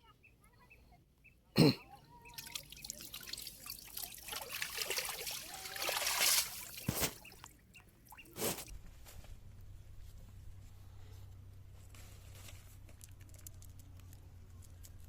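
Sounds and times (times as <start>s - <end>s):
water splashing and dripping: 2.2s - 8.7s
short thuds: 6.2s - 7.5s.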